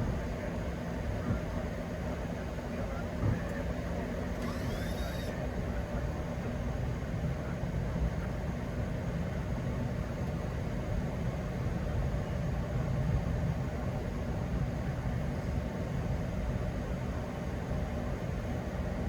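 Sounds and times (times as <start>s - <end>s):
cockpit air conditioning: 0.0s - 19.0s.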